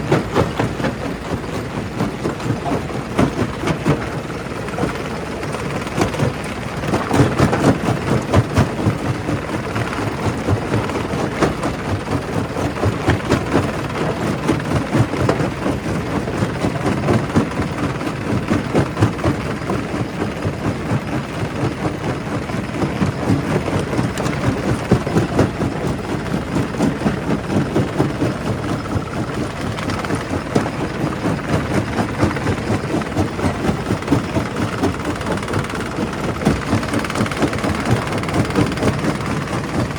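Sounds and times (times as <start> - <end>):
heavy machine noise: 0.0 - 39.9.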